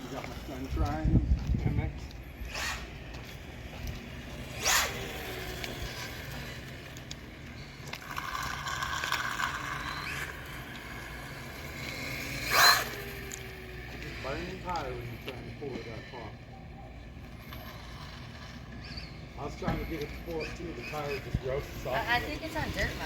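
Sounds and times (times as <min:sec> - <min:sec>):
electric motor whine: 0:00.0 - 0:16.4, 0:17.0 - 0:23.0
tire spinning in loose dirt: 0:03.8 - 0:15.5.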